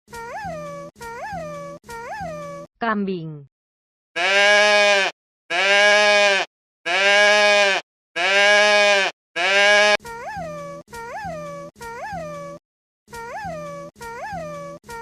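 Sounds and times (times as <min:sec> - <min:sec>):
goat bleating: 0:04.2 - 0:10.0.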